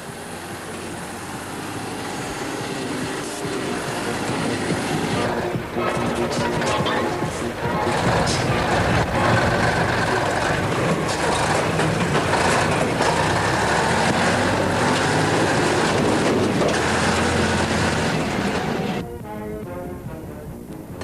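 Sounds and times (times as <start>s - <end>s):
truck engine running: 0.0s - 19.1s
drivetrain and tyre rumble: 0.0s - 21.0s.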